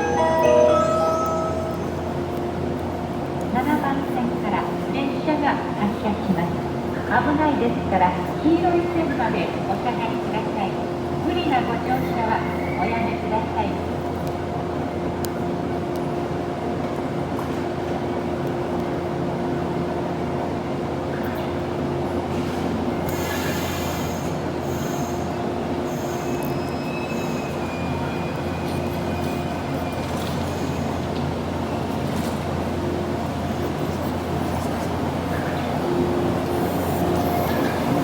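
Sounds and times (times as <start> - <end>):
electric train humming: 0.0 - 3.5
train wheels squealing: 23.1 - 25.3, 25.9 - 31.0.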